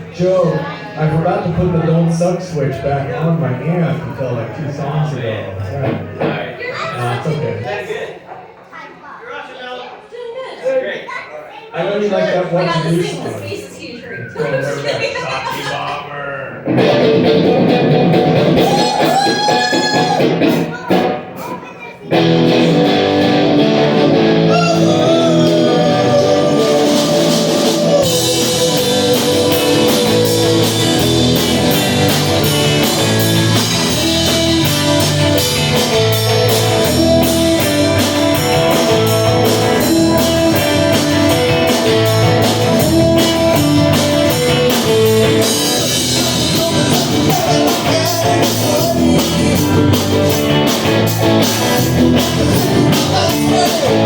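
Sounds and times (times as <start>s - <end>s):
electric guitar riff: 16.6s - 21.4s, 22.1s - 54.0s
drums and cymbals: 16.7s - 54.0s.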